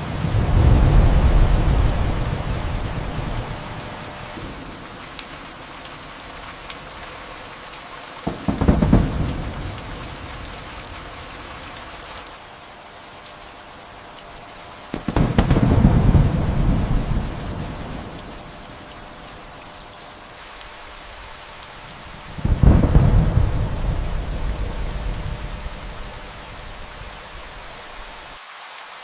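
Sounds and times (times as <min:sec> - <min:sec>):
thunder rumbling: 0:00.0 - 0:06.9, 0:08.2 - 0:12.1, 0:14.9 - 0:19.4, 0:21.7 - 0:28.3
steady rain: 0:00.0 - 0:29.0.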